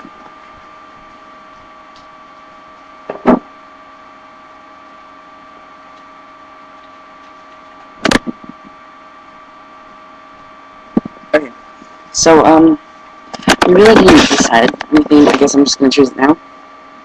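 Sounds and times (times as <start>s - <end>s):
electrical hum with whine: 0.0s - 17.0s.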